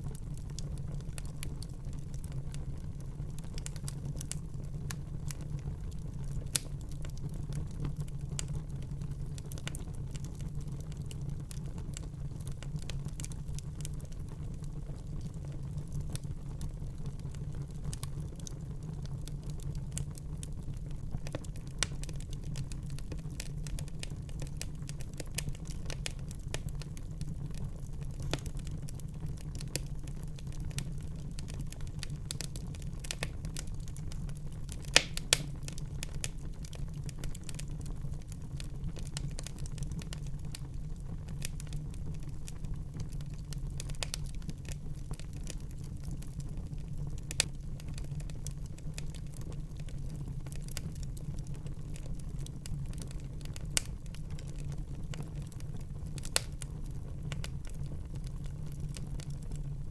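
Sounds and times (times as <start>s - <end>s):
wood fire crackling: 0.0s - 59.9s
loud fire pops: 34.7s - 36.4s.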